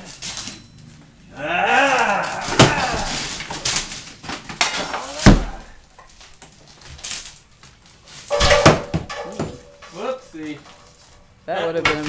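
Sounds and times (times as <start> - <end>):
voices: 1.0 - 3.7, 4.7 - 6.0, 8.3 - 12.0.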